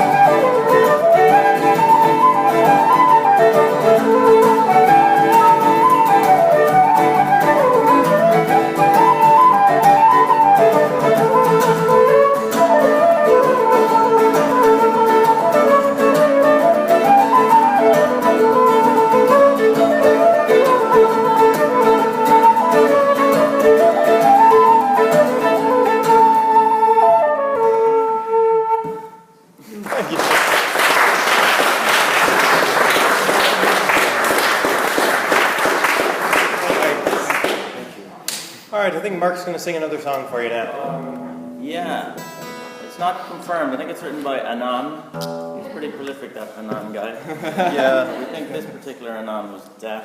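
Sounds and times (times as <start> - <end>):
flute-like melody: 0.0 - 29.4.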